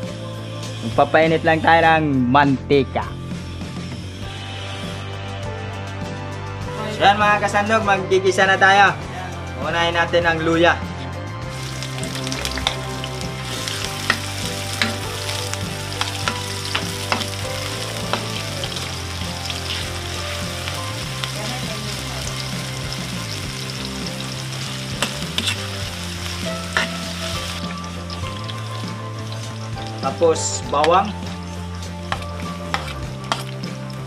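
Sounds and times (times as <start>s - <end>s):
ginger sizzling in oil: 11.5s - 34.0s
metal ladle scraping wok: 24.6s - 28.8s.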